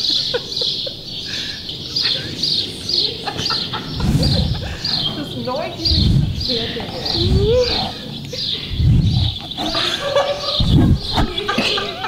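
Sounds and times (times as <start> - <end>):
birds chirping: 0.0 - 12.0
low gliding bird calls: 0.1 - 11.6
low rumble near microphone: 3.4 - 11.6.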